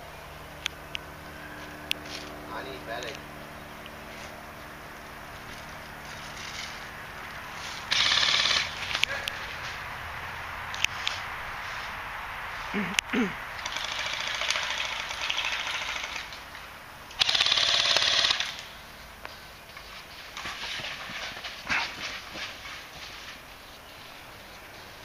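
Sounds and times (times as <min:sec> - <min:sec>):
airsoft gun firing full auto: 0:07.9 - 0:09.0, 0:13.6 - 0:16.4, 0:17.2 - 0:18.8.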